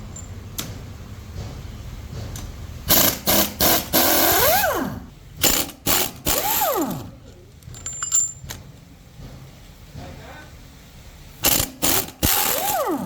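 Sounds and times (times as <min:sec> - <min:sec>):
power tool whirring: 0:02.9 - 0:07.2, 0:11.4 - 0:13.0
metallic clicks and clatter: 0:07.2 - 0:09.4.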